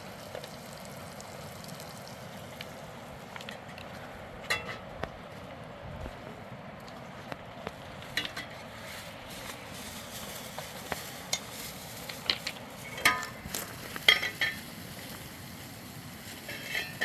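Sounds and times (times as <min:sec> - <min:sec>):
steady hiss: 0:07.8 - 0:17.0.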